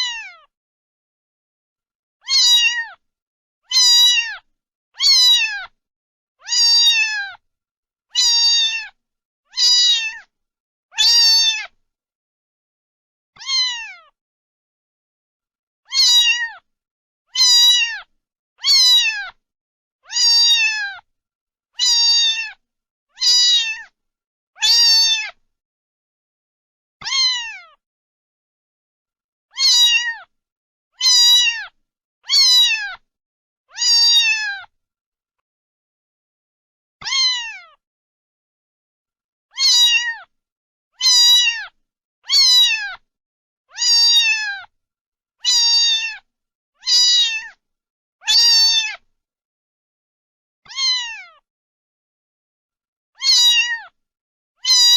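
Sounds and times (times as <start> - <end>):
cat meowing: 0.0 - 0.5, 2.2 - 3.0, 3.7 - 5.8, 6.4 - 7.4, 8.2 - 10.3, 10.9 - 11.8, 13.4 - 14.2, 15.9 - 16.7, 17.3 - 19.4, 20.0 - 21.1, 21.8 - 22.6, 23.2 - 24.0, 24.6 - 25.4, 27.0 - 27.8, 29.5 - 30.3, 31.0 - 33.0, 33.7 - 34.7, 37.0 - 37.8, 39.5 - 40.3, 41.0 - 43.0, 43.7 - 44.7, 45.4 - 47.6, 48.2 - 49.1, 50.6 - 51.4, 53.2 - 54.0, 54.6 - 54.9.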